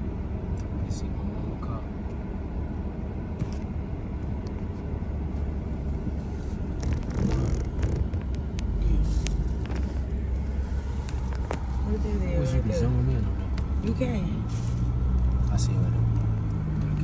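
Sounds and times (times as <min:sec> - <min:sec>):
vehicle engine and road rumble: 0:00.0 - 0:17.0
sharp clicks and rattles: 0:06.6 - 0:10.2.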